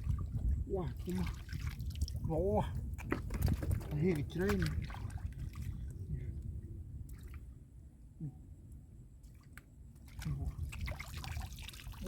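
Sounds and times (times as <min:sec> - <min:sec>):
soft drips: 0:00.0 - 0:07.6, 0:09.2 - 0:12.0
low rumble: 0:02.1 - 0:09.2.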